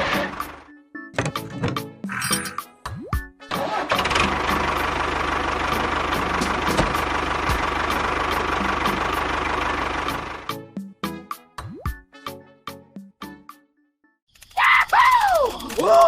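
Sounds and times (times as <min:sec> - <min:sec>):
small engine running: 0:03.5 - 0:10.6, 0:14.3 - 0:16.0.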